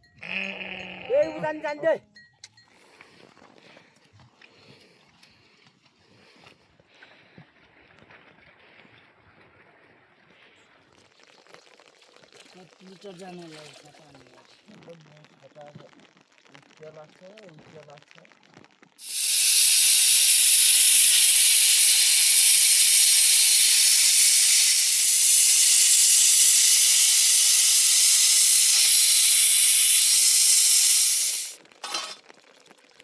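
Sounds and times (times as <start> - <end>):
loud steady hiss: 19.0 - 31.6.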